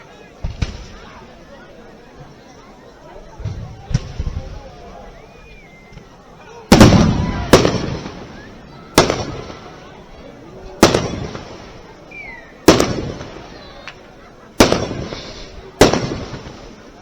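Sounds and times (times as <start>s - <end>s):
firework shells bursting: 6.7s - 9.7s, 10.8s - 14.0s, 14.6s - 17.0s.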